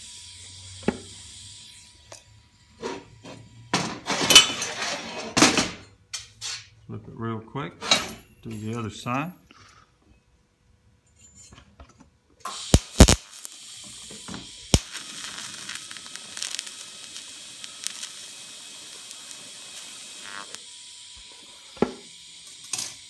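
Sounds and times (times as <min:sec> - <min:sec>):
sharp cracks of arc striking: 0:12.5 - 0:13.6, 0:14.4 - 0:20.6
welding arc crackling hiss: 0:12.5 - 0:23.0.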